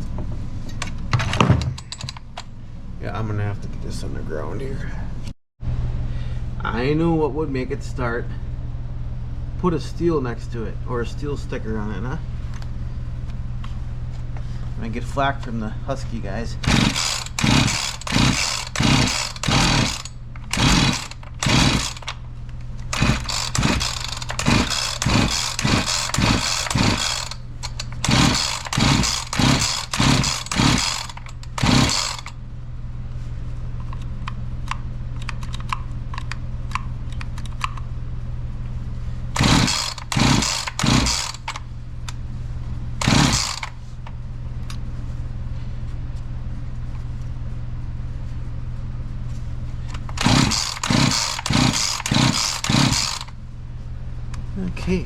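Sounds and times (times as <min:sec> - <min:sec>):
chainsaw recoil starter pulls: 0:16.6 - 0:22.2, 0:22.8 - 0:32.4, 0:39.4 - 0:41.6, 0:43.0 - 0:43.8, 0:50.0 - 0:53.4
engine turning over without catching: 0:16.6 - 0:22.2, 0:22.8 - 0:32.4, 0:39.4 - 0:41.6, 0:43.0 - 0:43.8, 0:50.0 - 0:53.4.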